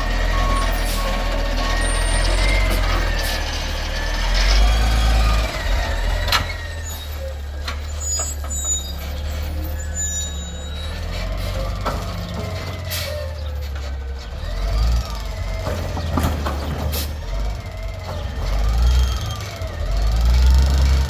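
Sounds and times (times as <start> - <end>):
garbage truck engine running: 0.0 - 21.0.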